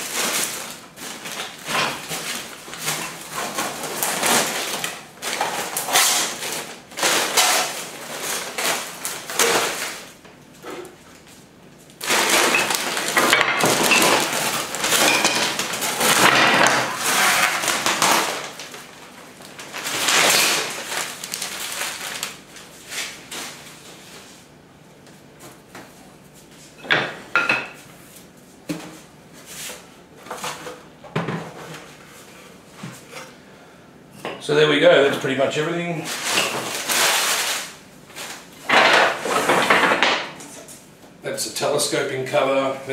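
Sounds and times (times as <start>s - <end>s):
packaging scraping and rustling: 0.0s - 10.2s, 12.0s - 24.3s, 36.0s - 39.8s.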